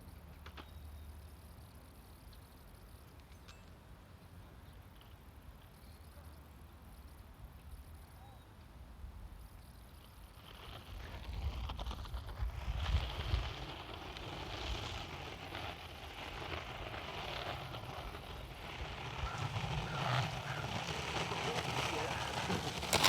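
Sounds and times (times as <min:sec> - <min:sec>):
surf breaking: 0:13.0 - 0:23.0
wind buffeting microphone: 0:16.0 - 0:23.0.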